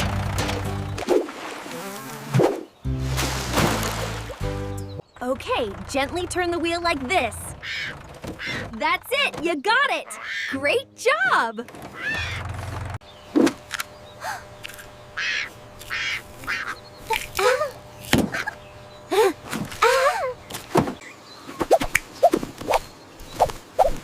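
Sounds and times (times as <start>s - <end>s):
bird squawks and caws: 7.6s - 8.8s, 10.0s - 10.6s, 11.9s - 12.5s, 15.1s - 16.8s.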